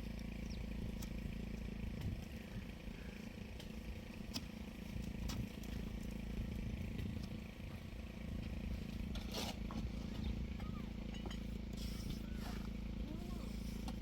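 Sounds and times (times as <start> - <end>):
engine humming: 0.0 - 14.0
short scrape: 11.8 - 12.6.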